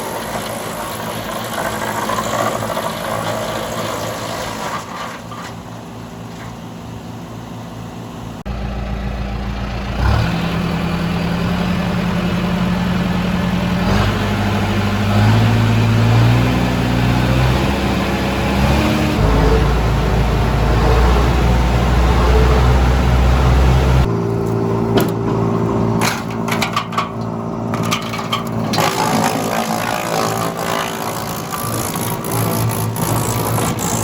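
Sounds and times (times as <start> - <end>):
wood chipper engine running: 0.0 - 34.0
branches cracking in chipper: 28.6 - 34.0.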